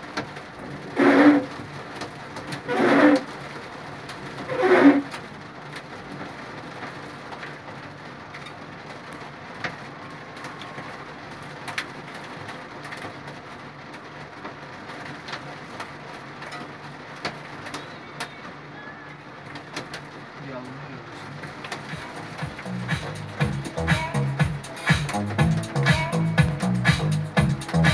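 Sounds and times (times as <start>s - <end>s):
rain falling: 0.0s - 27.9s.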